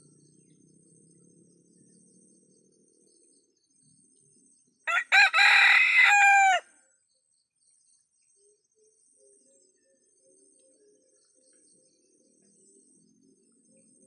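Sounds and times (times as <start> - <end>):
rooster crowing: 4.9 - 6.8.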